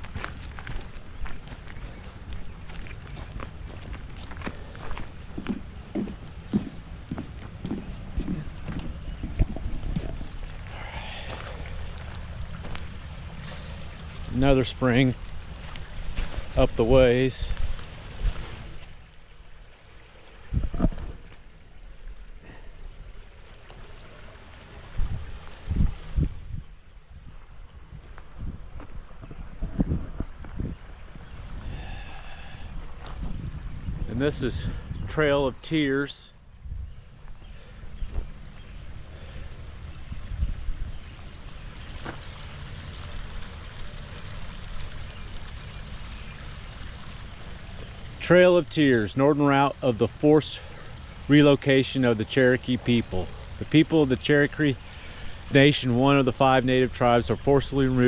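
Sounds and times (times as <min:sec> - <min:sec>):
spring water running: 0:00.0 - 0:36.1, 0:37.1 - 0:58.0
low thumps: 0:05.4 - 0:10.4.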